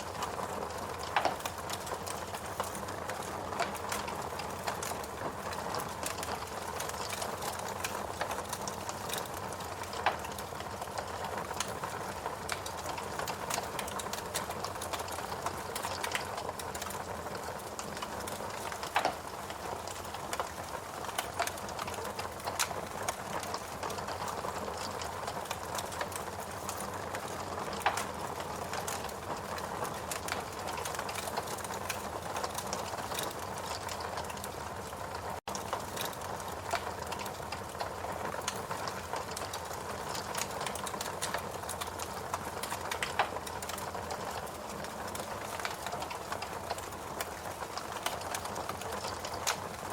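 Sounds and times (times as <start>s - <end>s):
fire crackling: 0.0s - 49.9s
sharp pops and snaps: 17.9s - 23.6s.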